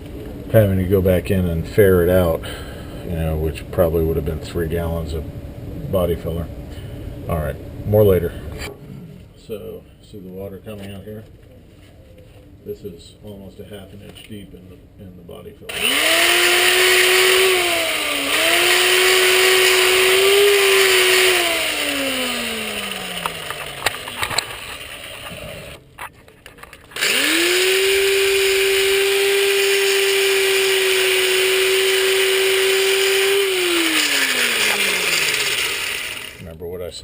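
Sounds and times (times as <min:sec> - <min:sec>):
electric angle grinder: 0:15.7 - 0:25.8, 0:27.0 - 0:36.4.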